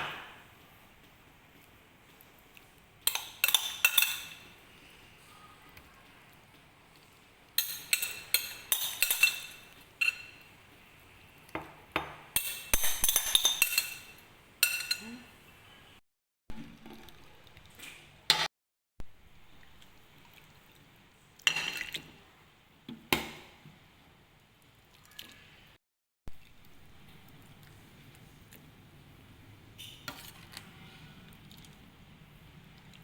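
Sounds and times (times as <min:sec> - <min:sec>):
kitchenware clinking: 0:03.0 - 0:04.6, 0:07.6 - 0:10.5, 0:11.5 - 0:15.2, 0:21.4 - 0:22.1.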